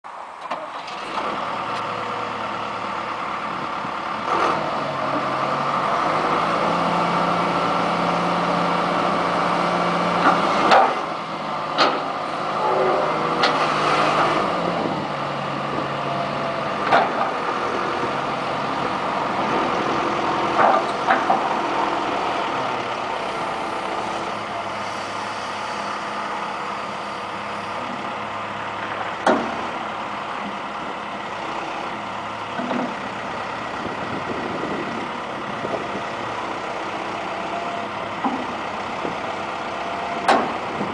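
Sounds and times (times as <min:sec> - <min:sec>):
excavator diesel engine running: 0:00.1 - 0:40.9
sharp metal knocks and clanks: 0:29.2 - 0:29.6.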